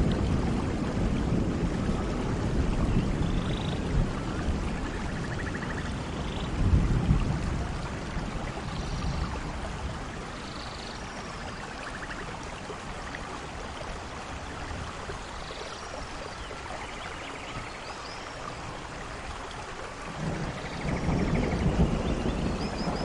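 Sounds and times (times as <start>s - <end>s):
thunder rumble: 0.0s - 10.4s, 20.0s - 23.0s
steady rainfall: 0.0s - 23.0s.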